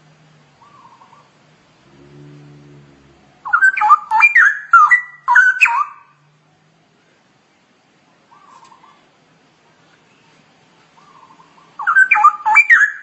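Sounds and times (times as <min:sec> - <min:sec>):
bird singing whistled notes: 0:03.4 - 0:06.1, 0:11.0 - 0:13.0
faint short bird warble: 0:08.3 - 0:09.0.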